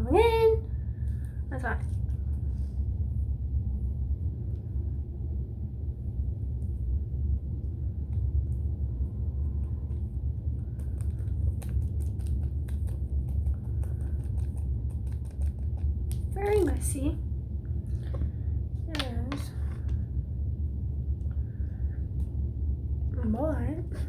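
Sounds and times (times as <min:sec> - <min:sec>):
steady low rumble: 0:00.0 - 0:24.0
hands kneading squishy slime: 0:07.7 - 0:17.1.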